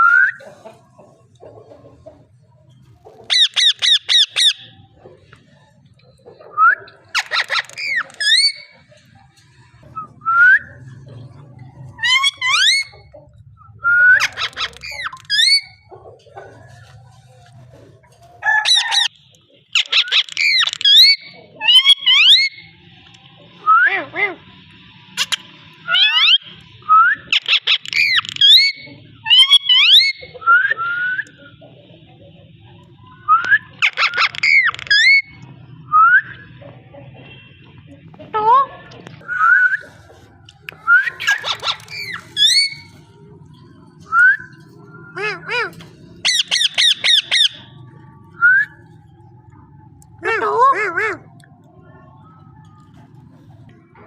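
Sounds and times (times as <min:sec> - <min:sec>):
parakeet whistling and chirping: 0:06.5 - 0:08.7, 0:18.6 - 0:22.8, 0:25.2 - 0:31.4, 0:33.2 - 0:36.5, 0:40.7 - 0:43.0, 0:46.2 - 0:49.0
parakeet whistling: 0:40.8 - 0:43.0, 0:46.2 - 0:48.8.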